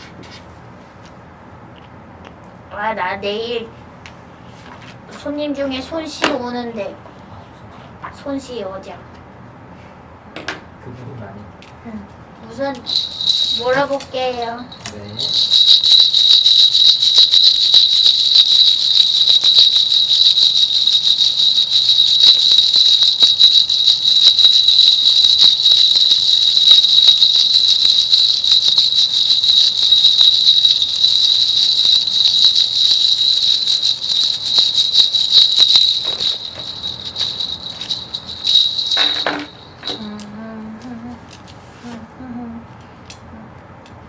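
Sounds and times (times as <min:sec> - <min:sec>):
ritual bells jingling: 0:12.9 - 0:40.1.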